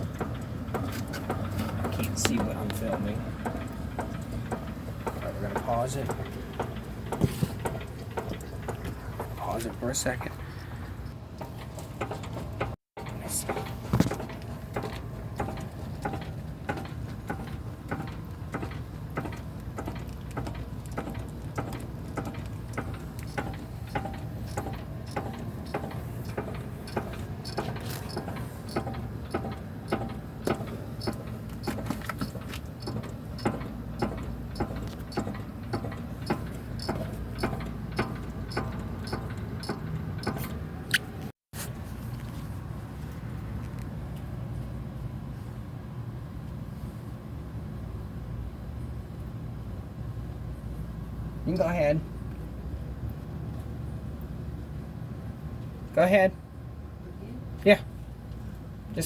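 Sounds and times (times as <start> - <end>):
car engine idling: 0.0 - 41.2
even ticking: 11.4 - 41.0.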